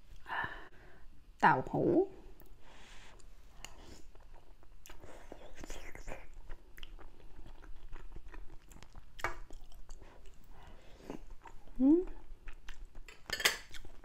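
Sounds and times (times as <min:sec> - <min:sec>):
person chewing wetly: 0:03.2 - 0:14.0.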